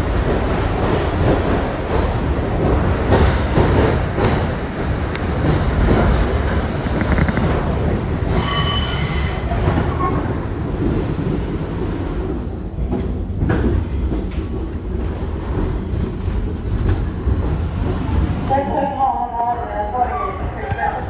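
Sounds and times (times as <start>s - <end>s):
subway train rumble: 0.0s - 21.0s
high-pitched wheel squeal: 8.3s - 10.2s.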